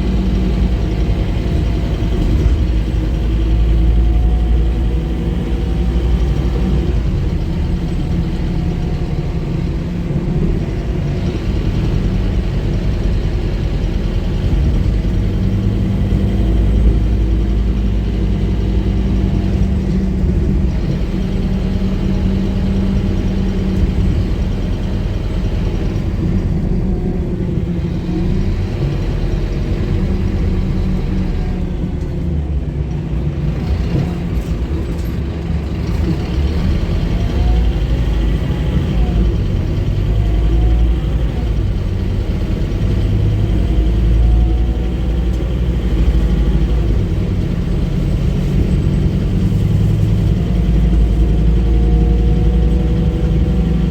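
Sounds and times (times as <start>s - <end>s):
bus diesel engine droning: 0.0s - 53.9s.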